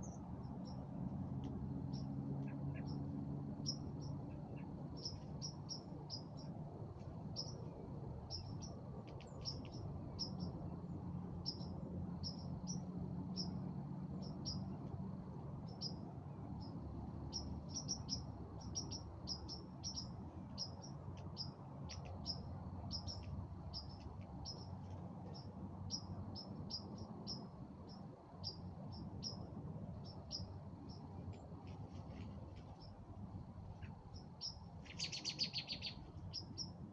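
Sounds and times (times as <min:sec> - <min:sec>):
small birds chirping: 0:00.0 - 0:36.9.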